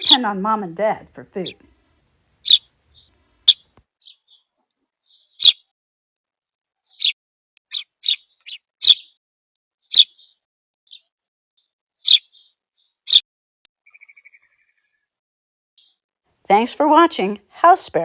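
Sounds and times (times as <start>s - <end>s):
sparrow chirping: 0.0s - 1.6s, 2.4s - 4.4s, 5.0s - 5.6s, 6.9s - 9.1s, 9.9s - 10.3s, 12.0s - 12.5s.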